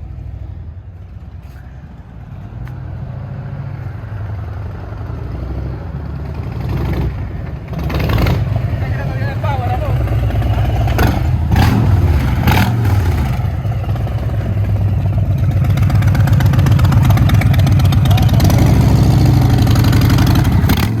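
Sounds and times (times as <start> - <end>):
motorcycle engine deep pulsing: 6.2 - 21.0.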